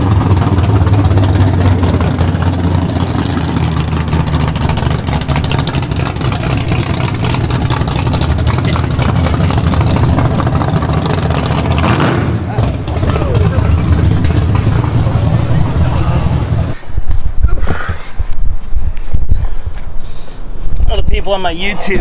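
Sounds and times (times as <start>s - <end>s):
vehicle engine idling: 0.0s - 16.9s.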